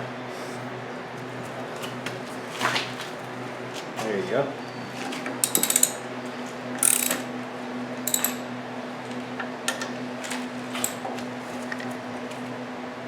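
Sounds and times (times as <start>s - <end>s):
ratchet wrench clicking: 5.4s - 6.0s, 6.8s - 7.3s, 8.0s - 8.5s.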